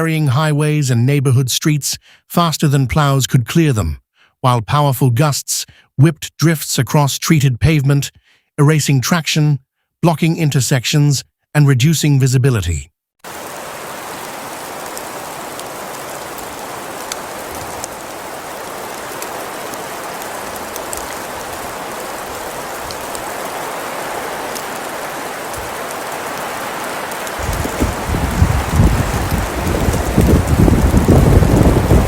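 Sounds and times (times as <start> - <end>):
rain hissing: 13.2 - 32.0
raindrops ticking: 13.3 - 32.0.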